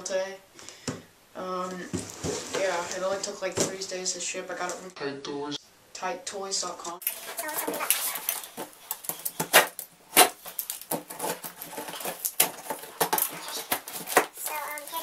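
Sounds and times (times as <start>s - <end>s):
box and packing being handled: 7.0s - 15.0s.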